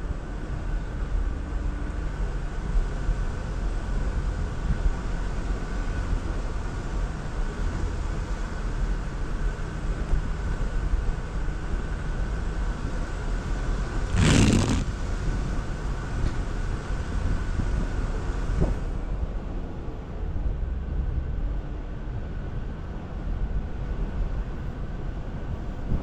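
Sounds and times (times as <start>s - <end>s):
engine and drivetrain rumble: 0.0s - 26.0s
loud rushing noise: 14.1s - 15.0s.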